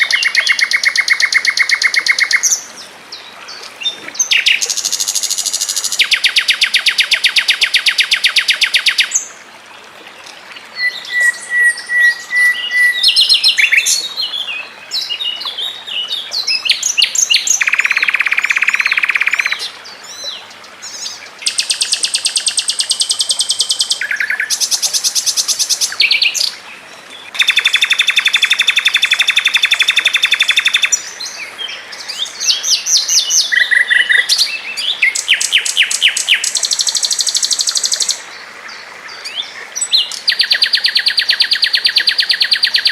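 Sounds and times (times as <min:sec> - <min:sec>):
songbird trilling and chirping: 0:10.8 - 0:19.6, 0:27.3 - 0:31.0.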